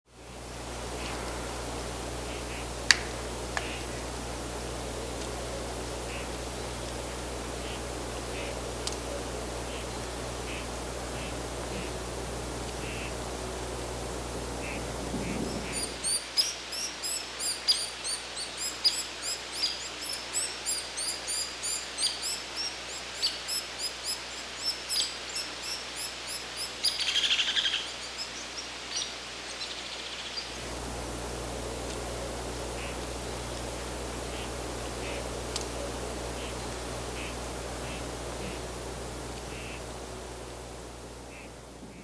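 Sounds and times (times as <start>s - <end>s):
steady hiss: 0.1s - 42.0s
woodpecker high-pitched calls: 14.6s - 28.0s, 36.3s - 38.7s, 39.5s - 39.9s.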